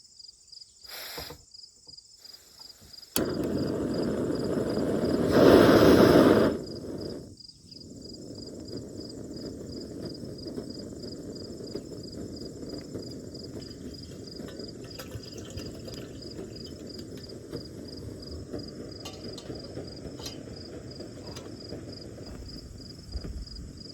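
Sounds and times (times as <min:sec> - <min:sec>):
insect chirping: 0:00.0 - 0:23.9.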